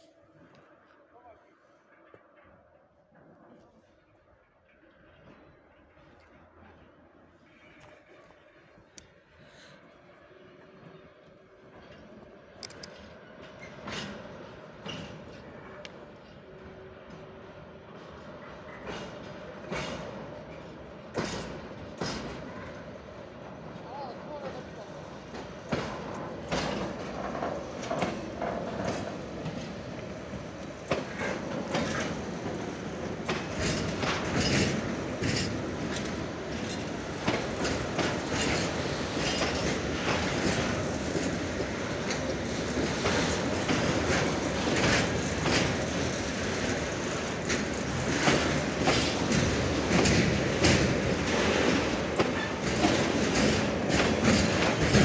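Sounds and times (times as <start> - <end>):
train wheels clacking over rail joints: 11.7 - 16.4, 18.0 - 23.1, 24.4 - 55.0.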